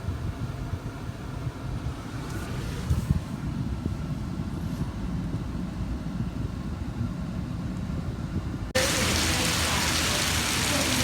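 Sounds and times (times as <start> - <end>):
heavy rain on a surface: 8.8 - 11.0.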